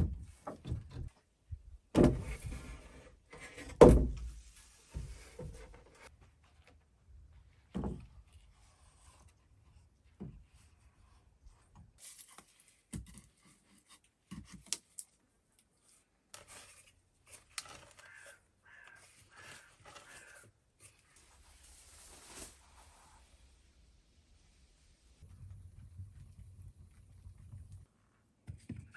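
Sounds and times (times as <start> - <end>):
faint knocks and handling noises: 25.2 - 28.9.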